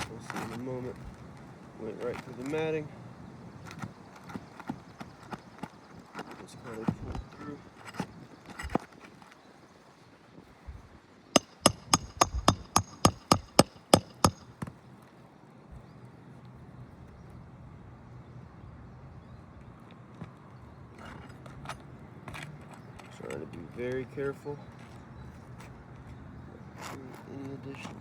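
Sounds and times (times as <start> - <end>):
hammer striking metal: 11.4 - 14.6.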